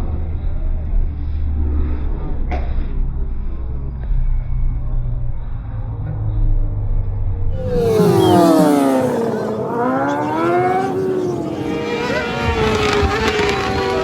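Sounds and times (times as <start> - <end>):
racing motorcycles passing: 7.6 - 14.0.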